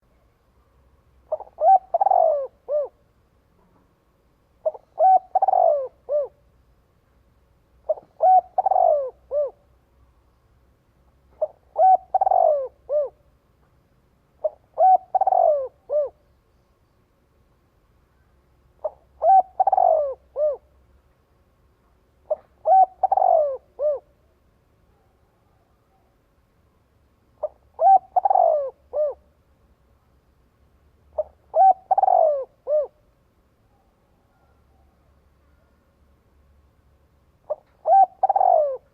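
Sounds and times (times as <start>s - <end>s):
dove cooing: 1.3s - 3.0s, 4.6s - 6.4s, 7.8s - 9.7s, 11.3s - 13.2s, 14.4s - 16.2s, 18.8s - 20.7s, 22.2s - 24.2s, 27.4s - 29.3s, 31.2s - 33.1s, 37.4s - 38.9s.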